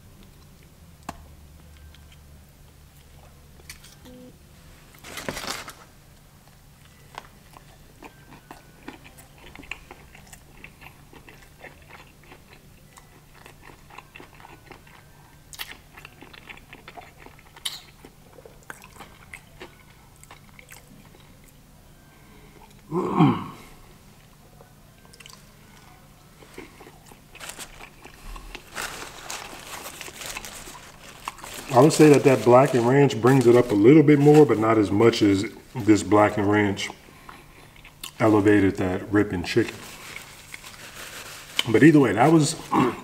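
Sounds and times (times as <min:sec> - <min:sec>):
crunchy chewing: 0:06.8 - 0:21.6, 0:25.0 - 0:34.4.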